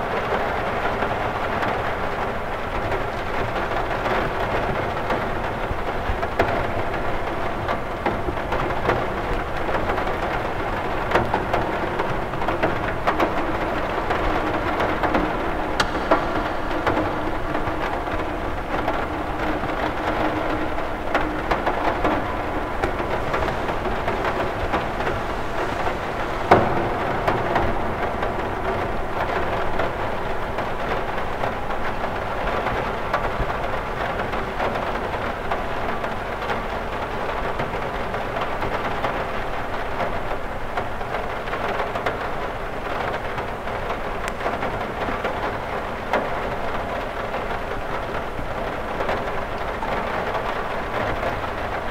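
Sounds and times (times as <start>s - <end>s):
rain pattering on a window: 0.0s - 51.9s
sharp knock: 15.8s - 19.7s.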